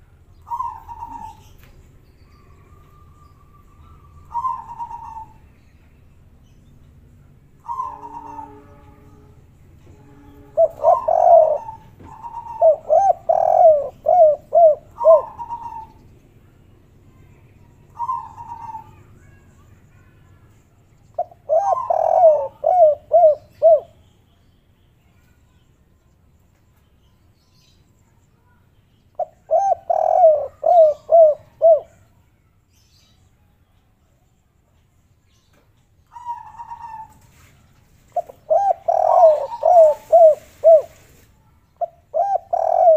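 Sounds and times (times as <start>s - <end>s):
dove cooing: 0.4s - 1.7s, 2.4s - 5.5s, 7.6s - 8.9s, 10.2s - 16.0s, 17.9s - 19.1s, 21.2s - 24.0s, 29.2s - 32.1s, 36.1s - 37.5s, 38.1s - 41.2s, 41.8s - 42.9s.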